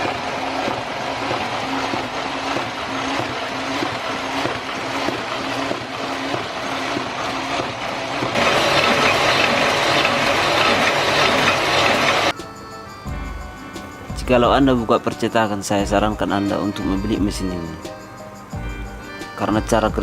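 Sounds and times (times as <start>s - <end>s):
printing press running: 0.0s - 12.3s.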